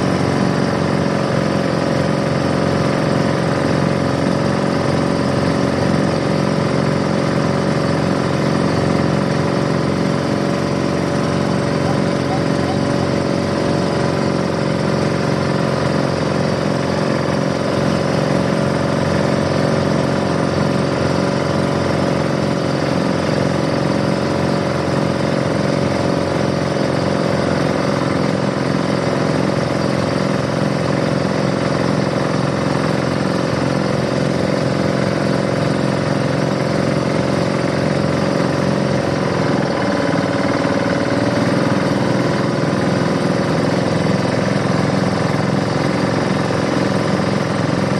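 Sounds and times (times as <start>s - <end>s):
boat engine running: 0.0s - 47.9s.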